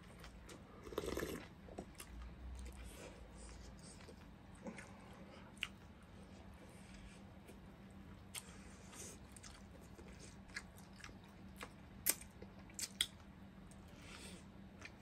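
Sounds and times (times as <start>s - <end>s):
faint steady hum: 0.0s - 15.0s
person chewing and biting: 9.2s - 13.2s.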